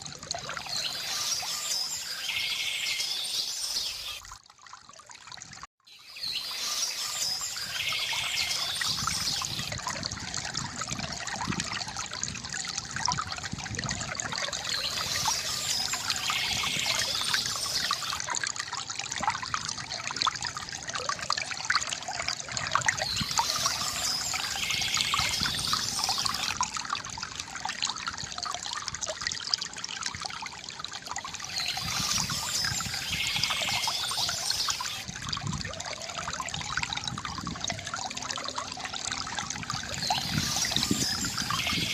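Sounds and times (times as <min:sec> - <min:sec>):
fountain water trickling: 0:00.0 - 0:41.9
bright water hiss: 0:31.6 - 0:35.0.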